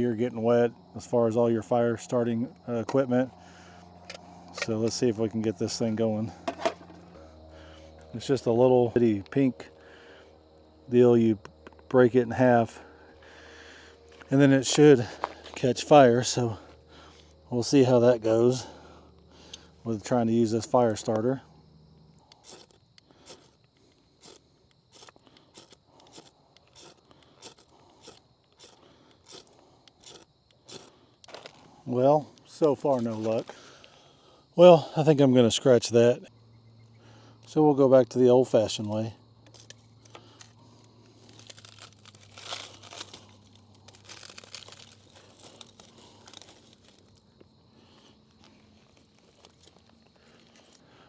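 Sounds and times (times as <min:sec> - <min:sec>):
fire starter scraping: 0:04.0 - 0:08.6, 0:11.5 - 0:21.4, 0:22.0 - 0:34.1, 0:39.4 - 0:51.0
paper crinkling and tearing: 0:41.1 - 0:47.2.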